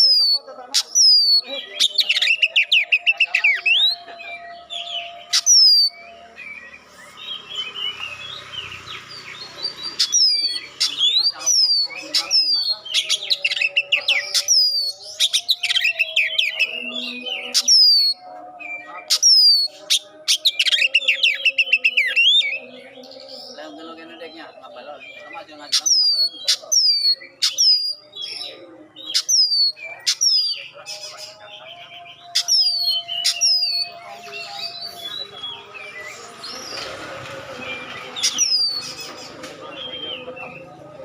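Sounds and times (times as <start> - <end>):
bird chattering: 0.0 - 3.9, 9.7 - 16.6
bird twittering: 0.0 - 18.2, 25.1 - 30.8.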